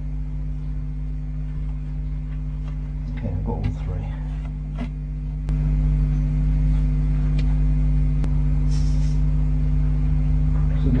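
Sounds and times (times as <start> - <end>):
electrical mains hum: 0.0 - 11.0
brief hiss: 8.6 - 9.3.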